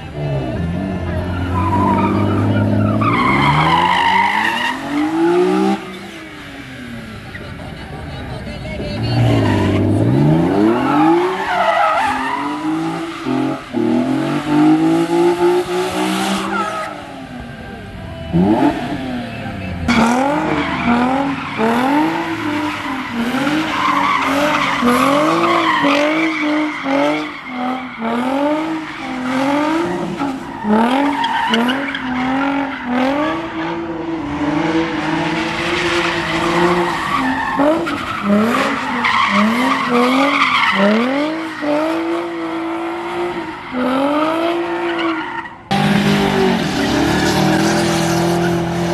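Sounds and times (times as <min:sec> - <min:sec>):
car engine revving: 0:00.0 - 0:48.9
tyres squealing: 0:01.2 - 0:06.2, 0:09.1 - 0:14.7, 0:19.6 - 0:33.8, 0:35.1 - 0:42.8.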